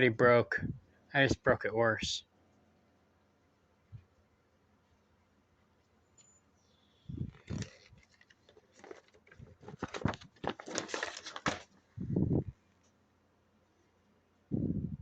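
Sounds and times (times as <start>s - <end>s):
packaging crinkling and rustling: 7.3s - 11.8s.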